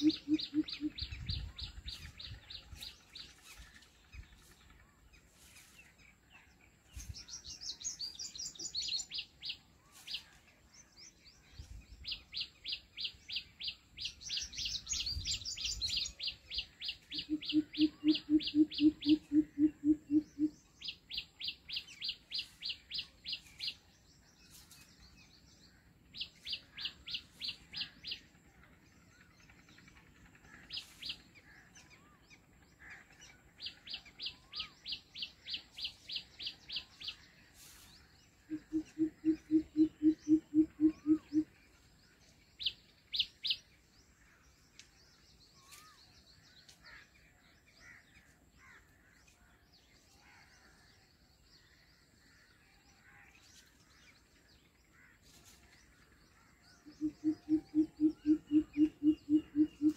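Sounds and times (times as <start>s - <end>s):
lower pulsed bird call: 0.0s - 1.6s, 14.4s - 22.1s, 38.4s - 41.6s, 56.8s - 59.9s.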